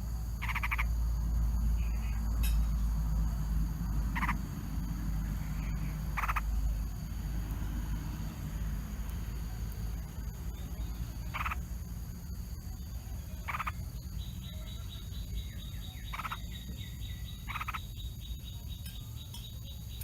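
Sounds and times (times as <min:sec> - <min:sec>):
steady low rumble: 0:00.0 - 0:19.4
harsh animal calls: 0:00.4 - 0:01.0, 0:04.1 - 0:04.4, 0:05.4 - 0:07.0, 0:11.2 - 0:11.7, 0:13.3 - 0:13.9, 0:15.8 - 0:17.9.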